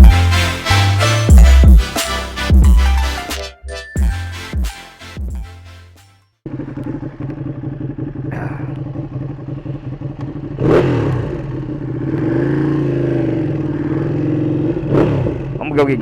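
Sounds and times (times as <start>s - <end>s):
motorcycle engine idling: 6.4s - 16.0s.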